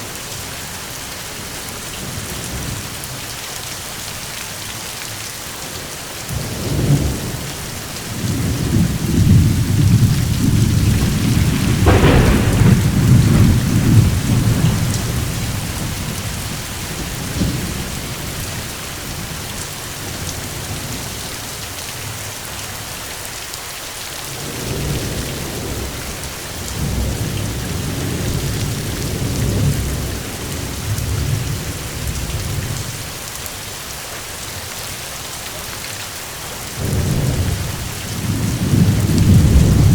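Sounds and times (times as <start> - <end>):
steady rain: 0.0 - 39.9
rolling thunder: 6.4 - 19.4, 36.8 - 39.9.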